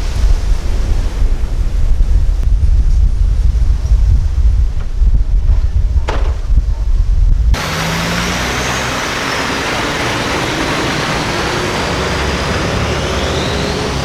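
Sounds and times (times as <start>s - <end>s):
wind rumble on microphone: 0.0s - 14.0s
dump trucks running: 7.6s - 14.0s.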